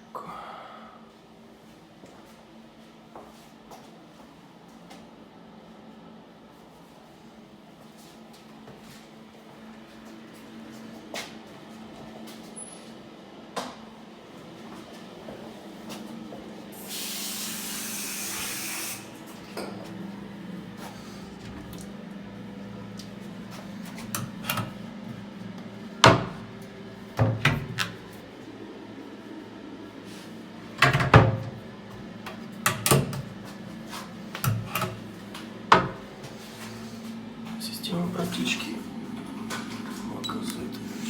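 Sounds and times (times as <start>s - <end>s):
hiss: 16.8s - 19.1s
door and cupboard knocks and clicks: 26.0s - 26.4s, 30.8s - 31.5s.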